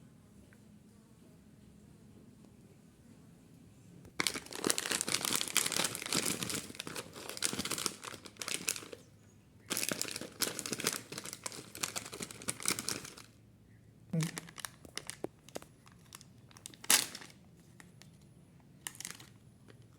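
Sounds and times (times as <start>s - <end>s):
plastic packaging crinkling: 4.1s - 9.0s, 9.7s - 13.4s, 14.2s - 18.2s, 18.8s - 19.9s.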